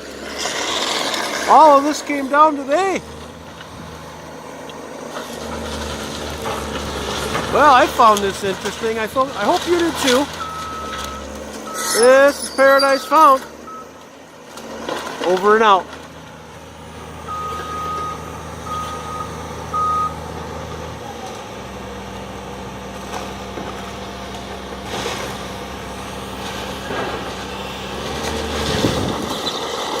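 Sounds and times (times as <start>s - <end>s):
machine engine running: 0.0s - 30.0s
backup alarm beeping: 10.3s - 14.0s, 17.3s - 20.2s.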